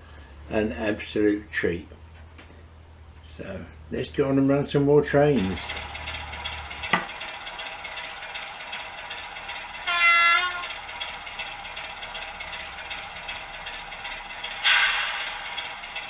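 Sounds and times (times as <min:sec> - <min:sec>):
steady running hum: 0:00.0 - 0:16.0
model locomotive horn toot: 0:09.8 - 0:10.8, 0:14.6 - 0:15.5.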